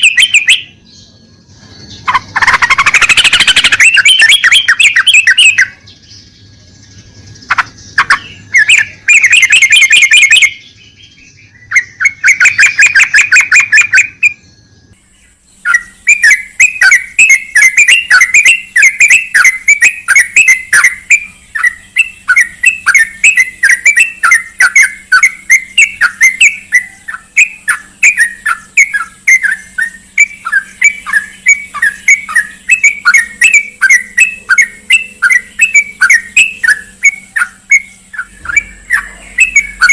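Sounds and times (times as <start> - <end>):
bulbul calling: 0.0 - 39.9.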